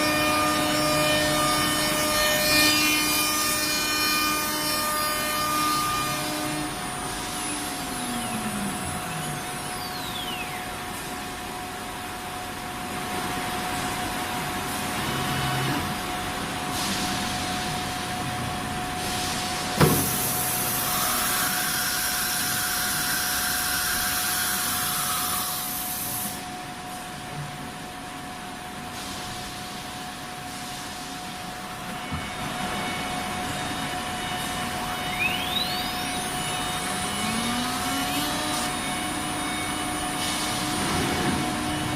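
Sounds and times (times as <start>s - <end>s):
saw cutting noise: 0.0s - 10.5s, 19.8s - 26.4s, 34.4s - 41.9s
band saw humming and whining: 0.0s - 27.0s, 31.5s - 41.9s.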